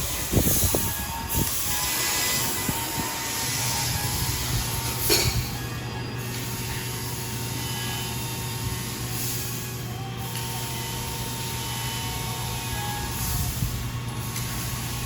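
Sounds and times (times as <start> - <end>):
ceiling fan humming: 0.0 - 15.0.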